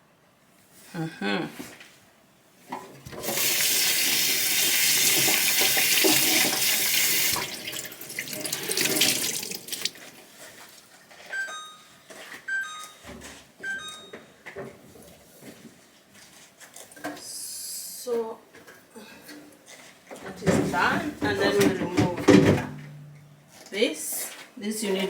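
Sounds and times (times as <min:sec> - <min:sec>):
tap running into a sink: 0:03.1 - 0:10.1.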